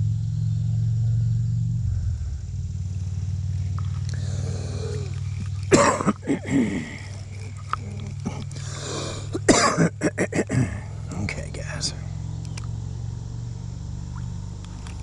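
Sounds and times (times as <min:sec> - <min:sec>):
engine humming: 0:00.0 - 0:15.0
loud throaty grunt: 0:04.1 - 0:11.0.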